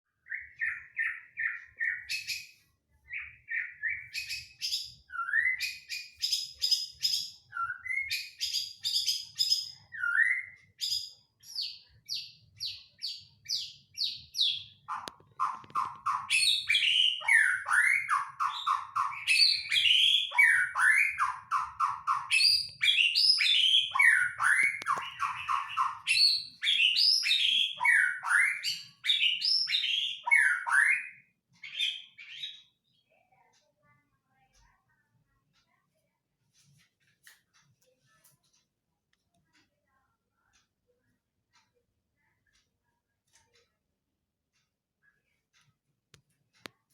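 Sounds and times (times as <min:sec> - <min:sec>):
bird singing whistled notes: 0:15.4 - 0:32.7.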